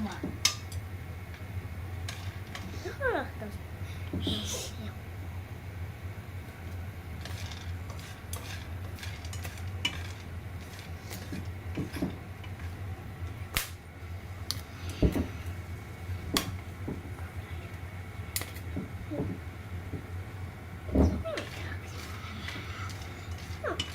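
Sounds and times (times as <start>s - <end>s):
steady low hum: 0.0s - 23.9s
utensils clinking against dishes: 7.2s - 12.7s, 21.0s - 23.9s.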